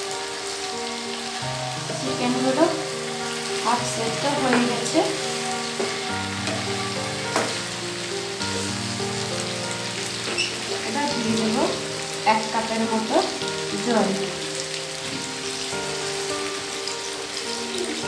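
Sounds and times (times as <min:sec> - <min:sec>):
food sizzling in a pan: 0:00.0 - 0:18.0
spatula scraping and knocking pan: 0:04.2 - 0:07.7.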